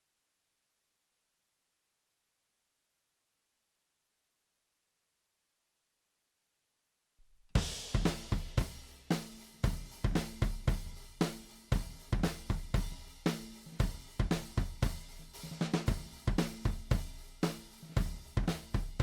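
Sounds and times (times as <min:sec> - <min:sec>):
drum loop groove: 0:07.6 - 0:19.0.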